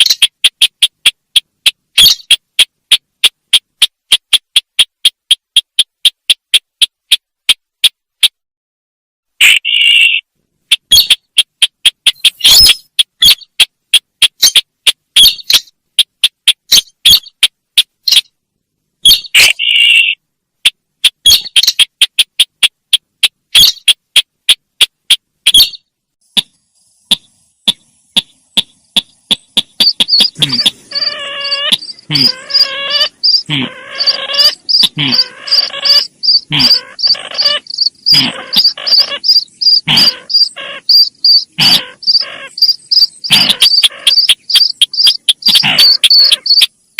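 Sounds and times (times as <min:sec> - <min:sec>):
bird lure sharp chirps: 0:00.0 - 0:08.4, 0:09.4 - 0:18.3, 0:19.0 - 0:26.5, 0:27.1 - 0:46.8
harsh raspy chattering calls: 0:00.0 - 0:08.4, 0:09.4 - 0:18.3, 0:19.0 - 0:25.8, 0:27.0 - 0:46.9.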